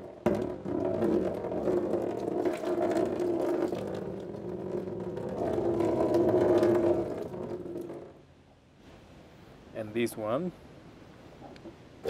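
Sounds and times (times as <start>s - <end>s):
liquid pouring into plastic basin: 0.0s - 8.0s.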